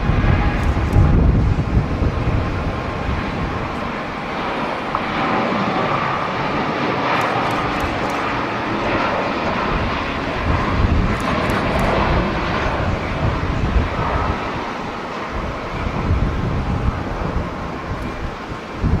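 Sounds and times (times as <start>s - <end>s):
jet engines roaring: 0.0s - 19.0s
wind gusting on microphone: 0.0s - 19.0s.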